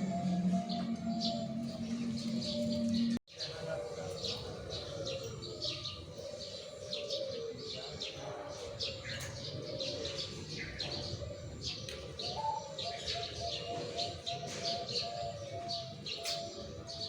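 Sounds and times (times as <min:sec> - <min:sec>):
high bird chirps: 0:00.0 - 0:03.2
doves cooing: 0:00.0 - 0:17.0.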